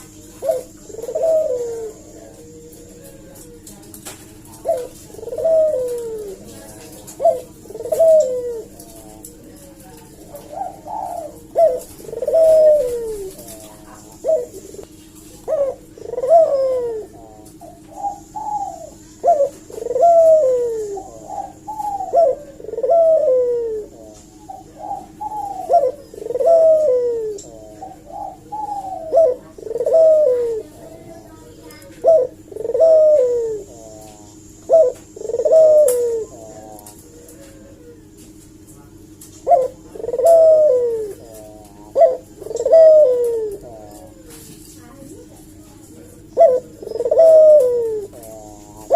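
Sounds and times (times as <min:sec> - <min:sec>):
dove cooing: 0:00.0 - 0:48.9
steady low hum: 0:00.0 - 0:48.9.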